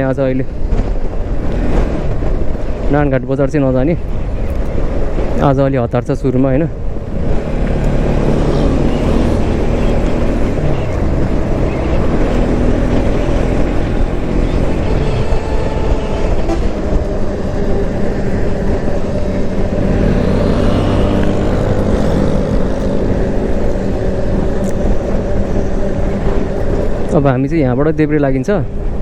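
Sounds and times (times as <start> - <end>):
road and wind noise: 0.0 - 29.0
motorcycle engine running: 6.8 - 27.7.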